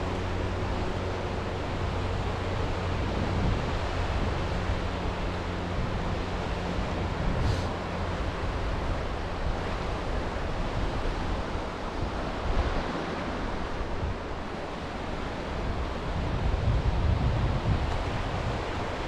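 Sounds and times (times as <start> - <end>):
sea waves washing on shore: 0.0 - 19.0
wind buffeting microphone: 0.0 - 19.0.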